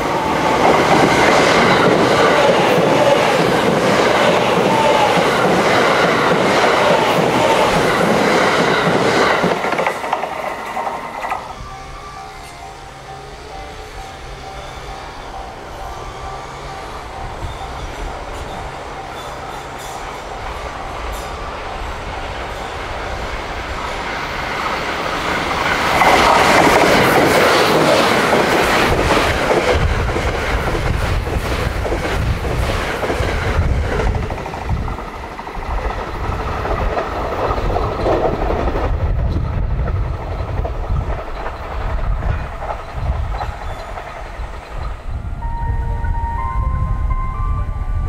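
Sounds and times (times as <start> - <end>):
wheels clacking over rail joints: 0.0 - 45.2
electric train passing: 0.0 - 48.0.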